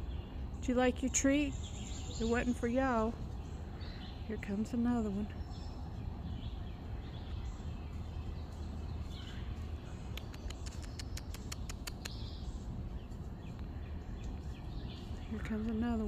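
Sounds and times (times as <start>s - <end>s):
sharp clicks: 10.1s - 12.2s.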